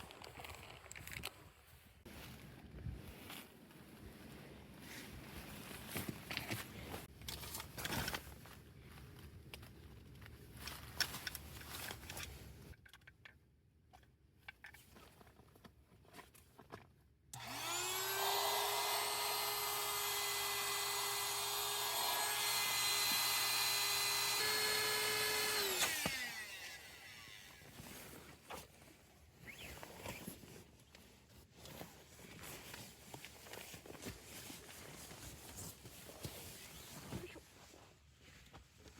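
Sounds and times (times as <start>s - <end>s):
small electric motor running: 17.4s - 27.6s.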